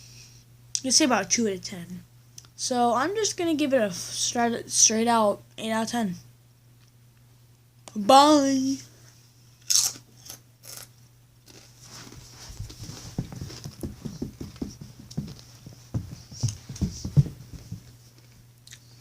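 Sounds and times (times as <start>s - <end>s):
person chewing crunchy chips: 9.6s - 10.9s, 11.5s - 11.8s.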